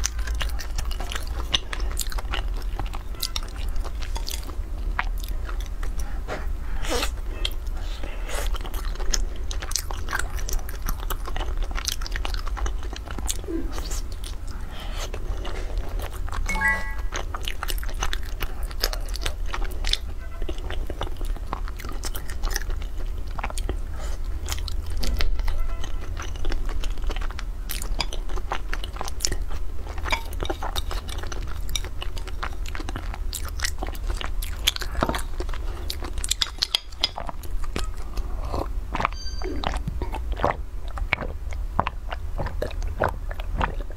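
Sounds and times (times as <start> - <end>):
person chewing soft food: 0.0 - 43.9
low steady hum: 12.3 - 17.6.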